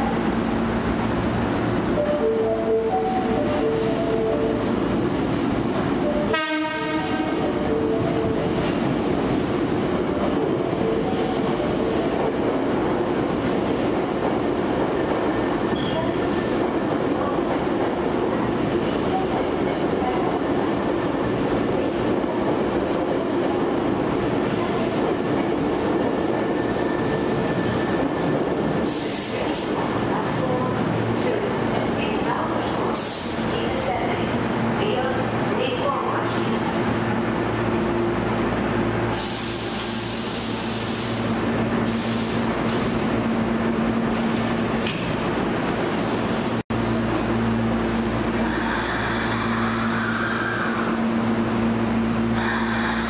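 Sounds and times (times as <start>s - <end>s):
train wheels rumbling in tunnel: 0.0s - 53.0s
train brake hiss: 39.1s - 42.5s.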